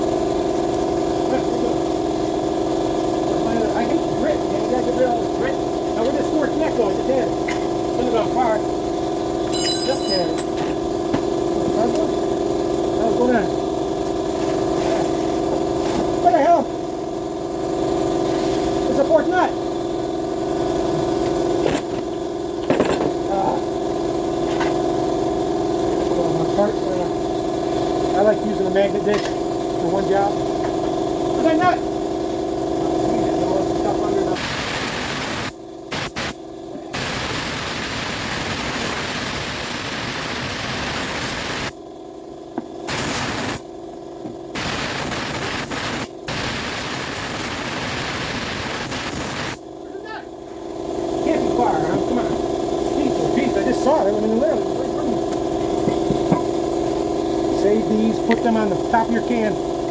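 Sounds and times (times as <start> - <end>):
machine drone: 22.6 - 43.8, 44.5 - 59.9
pressurized spray hissing: 34.4 - 36.4, 37.0 - 41.7, 42.9 - 43.6, 44.6 - 49.6.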